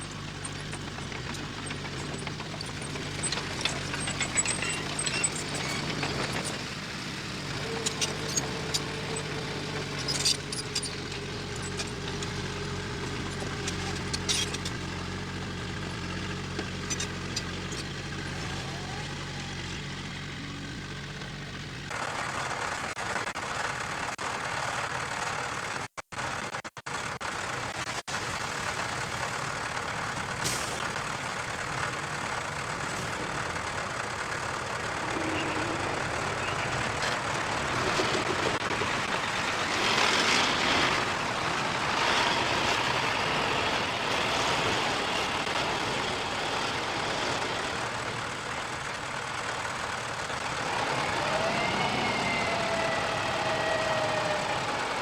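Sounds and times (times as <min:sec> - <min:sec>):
mechanical noise of machinery: 0:00.0 - 0:19.9, 0:32.2 - 0:47.5
diesel engine running: 0:00.0 - 0:55.0.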